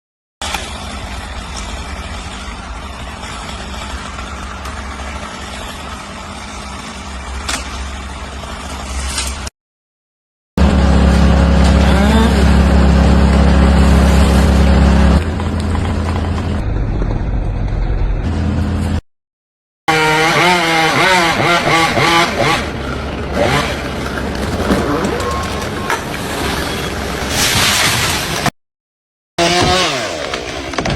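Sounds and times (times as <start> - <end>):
chainsaw engine running: 10.6 - 16.2, 19.9 - 25.9, 29.4 - 30.9.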